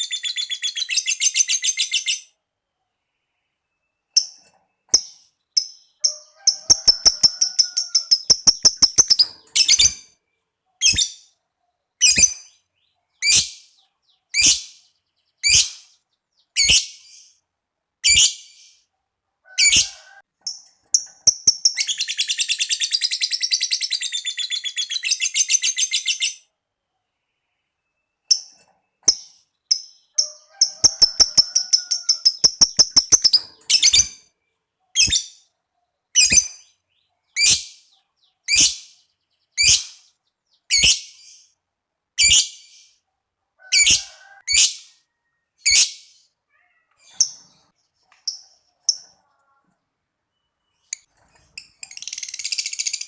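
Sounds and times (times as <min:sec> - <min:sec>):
lovebird rapid chattering: 0:04.2 - 0:10.0, 0:20.5 - 0:23.8, 0:29.1 - 0:34.2, 0:50.9 - 0:53.0
lovebird calling: 0:06.0 - 0:10.1, 0:30.2 - 0:34.2.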